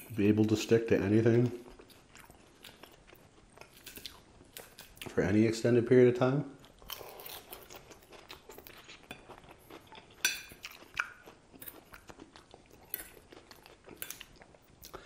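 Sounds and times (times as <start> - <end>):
chewing crunchy lettuce: 1.3 - 5.2, 6.6 - 15.0
fork clinking and scraping on plate: 10.1 - 10.8.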